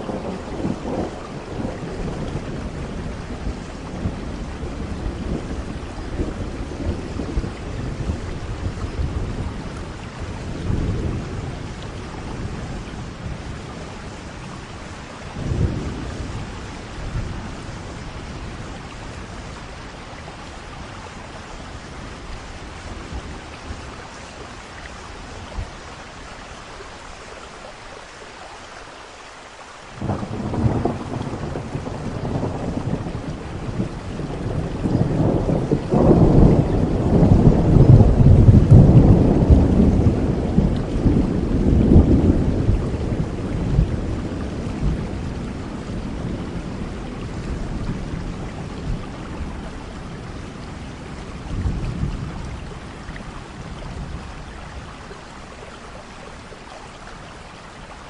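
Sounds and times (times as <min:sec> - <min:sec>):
rolling thunder: 0:00.0 - 0:20.0, 0:30.0 - 0:55.0
steady rain: 0:00.0 - 0:58.0.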